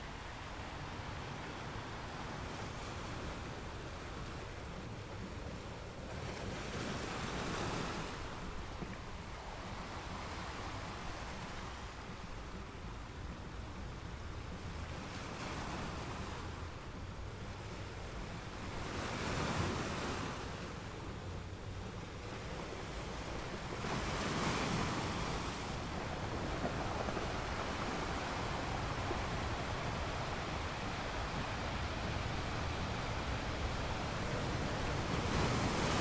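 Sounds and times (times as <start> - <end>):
ocean surf hiss: 15.0 - 36.0.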